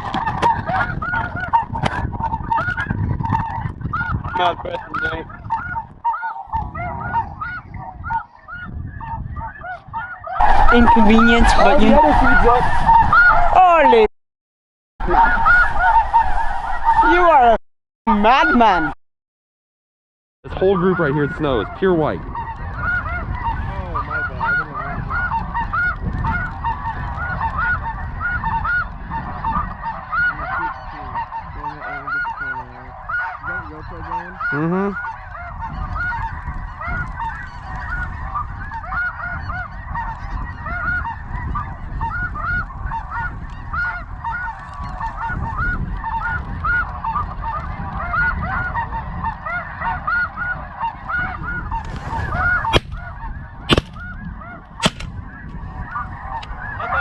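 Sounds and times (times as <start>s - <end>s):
geese honking: 0.0s - 14.1s, 15.0s - 19.0s, 20.5s - 57.0s
shotgun shots: 52.7s - 53.0s, 53.7s - 54.1s, 54.8s - 55.2s.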